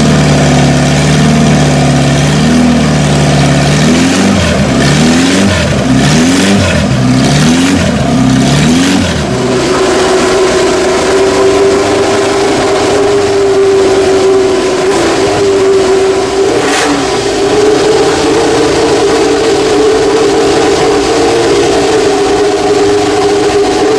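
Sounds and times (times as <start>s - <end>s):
racing car engines at full throttle: 0.0s - 23.9s.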